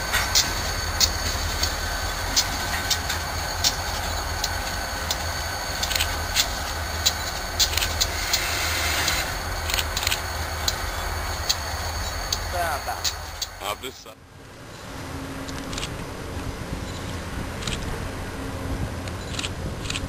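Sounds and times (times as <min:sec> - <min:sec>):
wheel and track clicks: 0:00.0 - 0:13.6
train rumbling past: 0:00.0 - 0:20.0.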